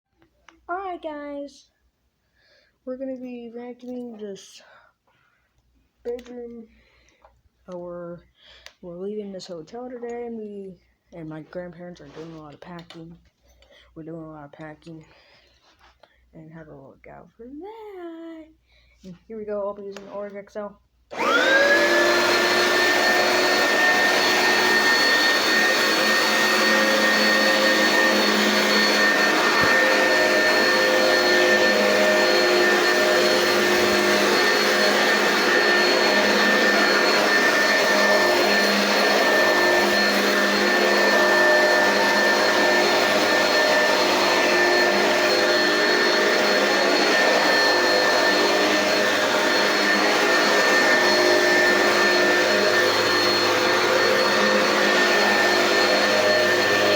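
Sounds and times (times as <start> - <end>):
upright vacuum cleaner running: 21.1 - 56.9.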